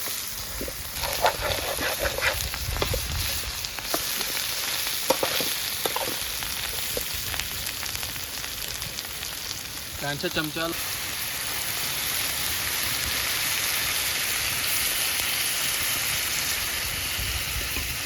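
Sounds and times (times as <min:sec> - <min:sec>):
food sizzling in hot oil: 0:00.0 - 0:18.0
utensil clicking and scraping pan: 0:00.6 - 0:06.2.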